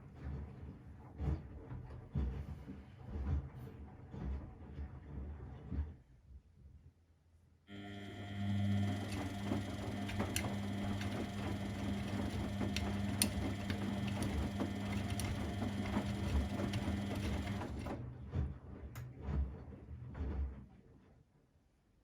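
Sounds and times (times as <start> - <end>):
appliance motor humming: 7.7 - 18.0
scattered clicks: 9.0 - 17.8.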